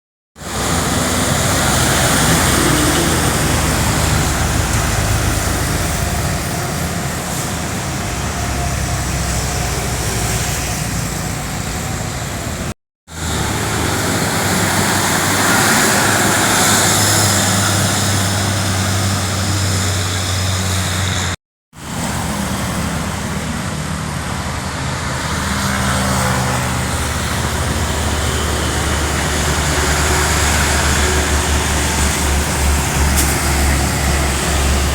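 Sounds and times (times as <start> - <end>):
truck diesel engines droning: 0.4 - 34.9
tyre and road noise: 0.4 - 34.9.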